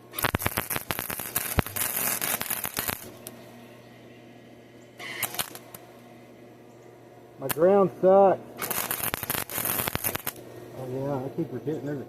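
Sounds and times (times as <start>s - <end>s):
welding arc crackling and sputtering: 0.0s - 3.4s, 5.0s - 6.0s, 7.4s - 12.0s.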